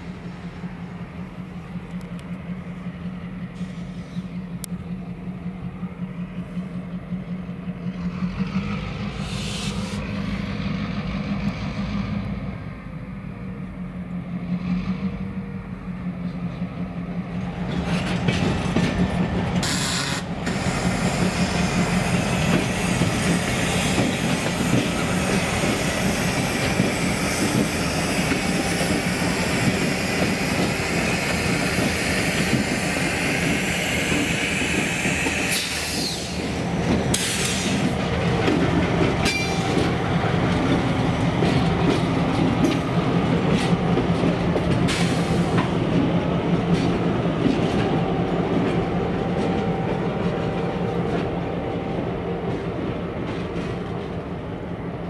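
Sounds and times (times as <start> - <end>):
diesel locomotive engines running: 0.0 - 55.0
wheels clacking over rail joints: 17.2 - 54.4
high wheel squeal: 19.6 - 21.5.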